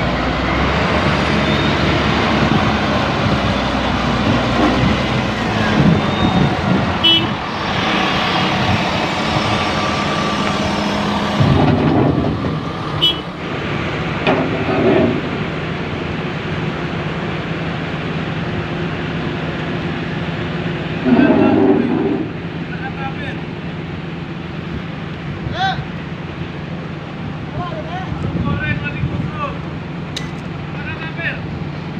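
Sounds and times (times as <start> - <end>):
diesel engines running: 0.0 - 31.9
sharp metal clanks: 30.1 - 30.4.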